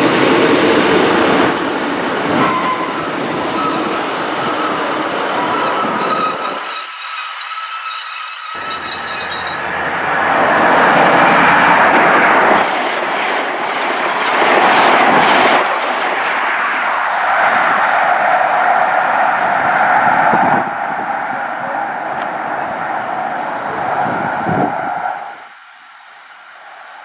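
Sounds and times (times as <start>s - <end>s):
passenger train passing: 0.0s - 27.0s.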